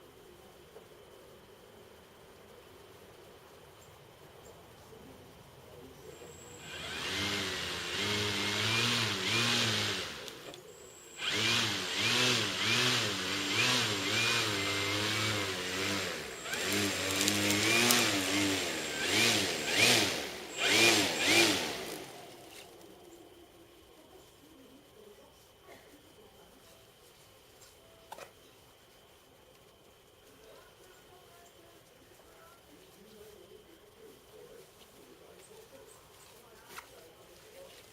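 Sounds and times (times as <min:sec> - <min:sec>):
electric model plane motor: 0:06.3 - 0:22.8.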